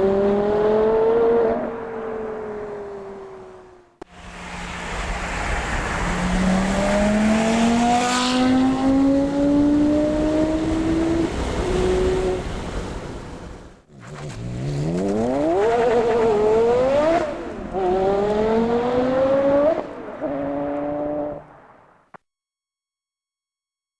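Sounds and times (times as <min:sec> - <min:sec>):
sports car engine accelerating hard: 0:04.8 - 0:12.0, 0:14.1 - 0:21.4.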